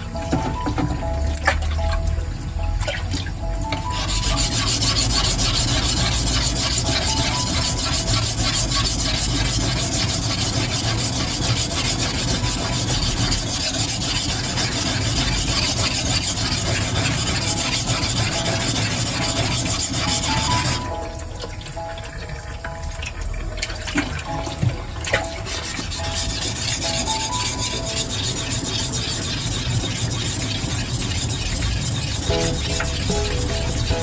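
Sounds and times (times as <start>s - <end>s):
knife scraping on whetstone: 3.8s - 20.9s, 25.2s - 34.0s.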